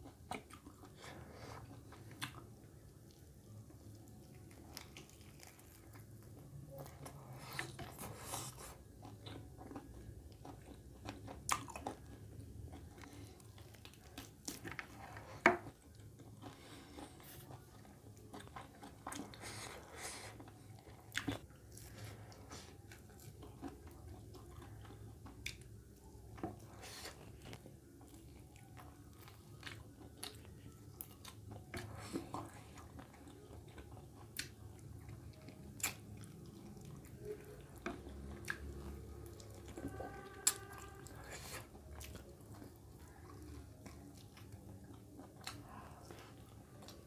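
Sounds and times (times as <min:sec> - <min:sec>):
person chewing: 0:00.0 - 0:47.0.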